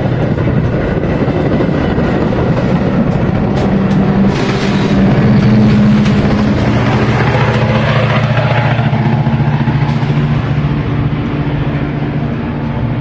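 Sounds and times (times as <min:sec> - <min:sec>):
diesel locomotive engine hum: 0:00.0 - 0:13.0
moving train rumble: 0:00.0 - 0:13.0.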